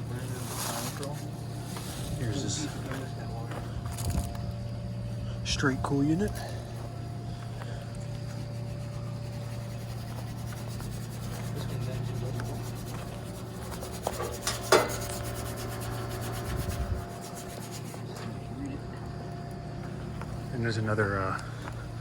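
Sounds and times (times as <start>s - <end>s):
air conditioning unit humming: 0.0s - 22.0s.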